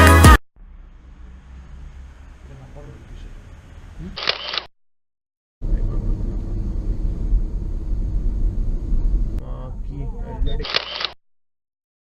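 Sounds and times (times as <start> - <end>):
loud low rumble: 0.6 - 4.0, 5.6 - 10.5.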